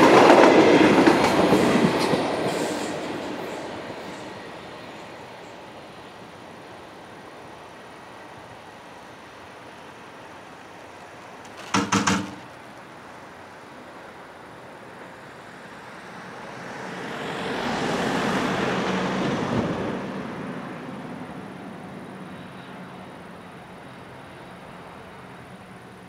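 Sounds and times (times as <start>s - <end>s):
sharp knocks: 11.4s - 12.6s.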